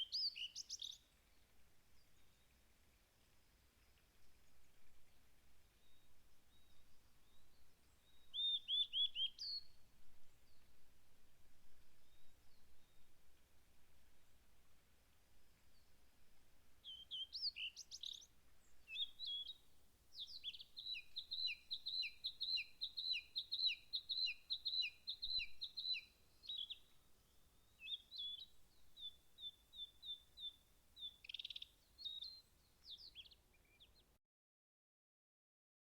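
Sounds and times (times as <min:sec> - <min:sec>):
songbird singing: 0:00.0 - 0:02.7, 0:03.6 - 0:10.8, 0:16.8 - 0:34.2.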